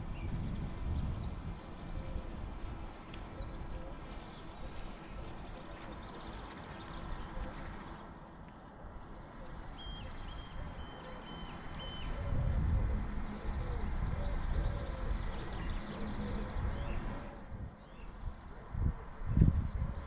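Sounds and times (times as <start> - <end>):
steady low rumble: 0.0 - 7.7
birdsong: 0.0 - 20.0.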